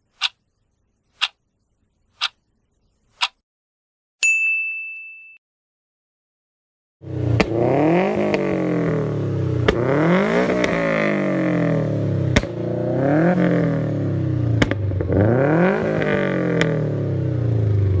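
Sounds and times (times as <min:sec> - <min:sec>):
car engine revving: 0:07.0 - 0:18.0.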